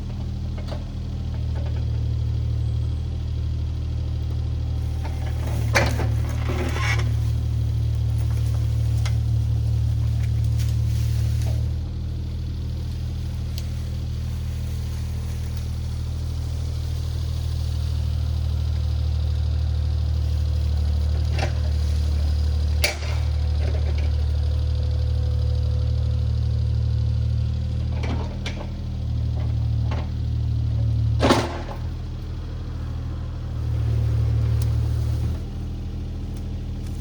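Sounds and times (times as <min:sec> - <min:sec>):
diesel engine of digger running: 0:00.0 - 0:37.0.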